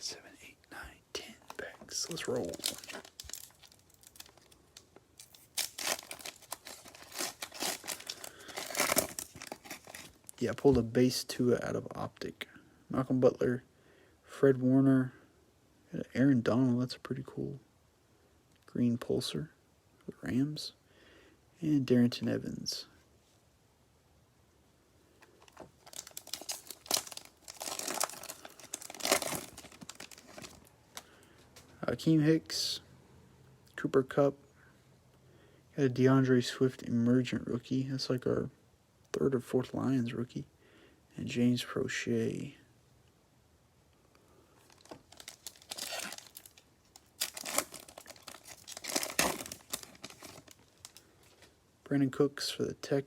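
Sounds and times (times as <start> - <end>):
foil wrapper tearing and crinkling: 2.0 - 10.3, 25.5 - 31.0, 44.6 - 51.4.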